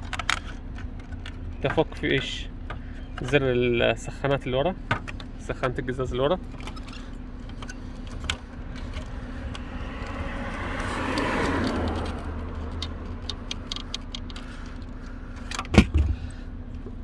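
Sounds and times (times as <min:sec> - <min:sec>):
steady low hum: 0:13.0 - 0:17.0.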